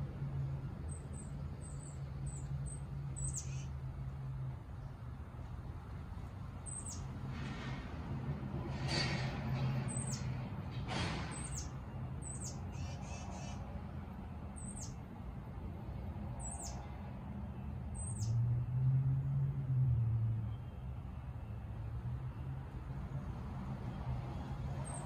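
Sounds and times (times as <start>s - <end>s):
songbird calls: 0.9s - 3.8s, 6.6s - 7.1s, 11.3s - 13.7s, 14.6s - 15.0s.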